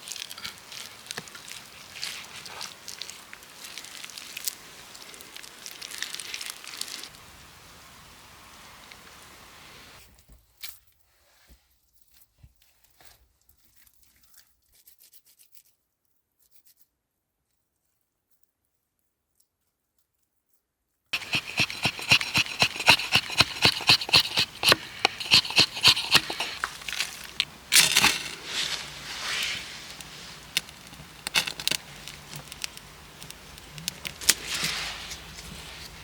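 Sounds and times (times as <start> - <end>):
rhythmic scraping strokes: 21.2 - 33.3
hands scraping and rustling: 21.2 - 36.0.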